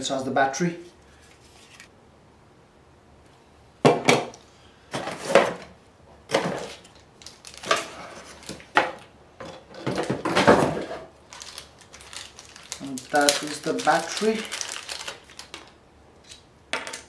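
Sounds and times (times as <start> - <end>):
packaging knocks clicks and rattles: 9.8 - 15.7.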